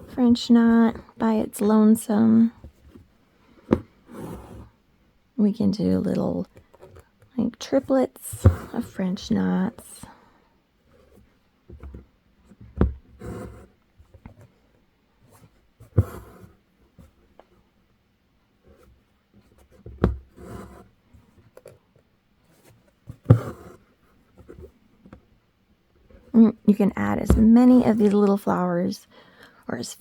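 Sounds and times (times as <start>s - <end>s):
thread rasping through fabric: 15.8s - 16.6s.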